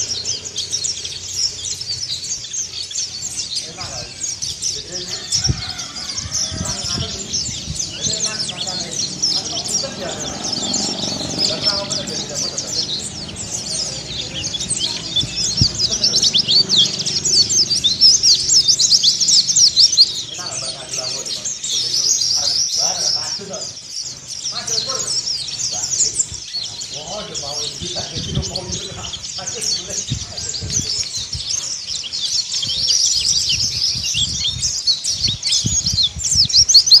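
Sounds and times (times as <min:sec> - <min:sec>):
bird twittering high chirps: 0:00.0 - 0:37.0
dull low thumps: 0:05.3 - 0:20.2.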